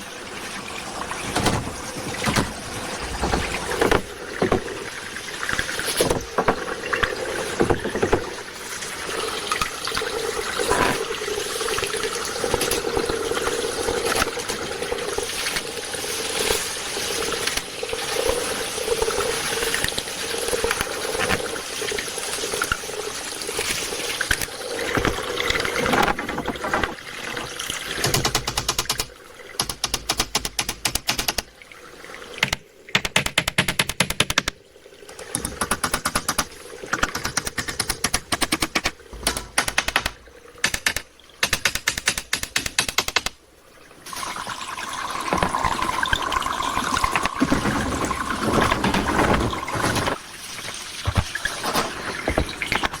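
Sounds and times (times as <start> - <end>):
stream water running: 0.0 - 53.0
fast clicks: 28.0 - 31.5, 32.4 - 34.6, 35.3 - 43.4
sharp knocks: 35.4 - 43.4.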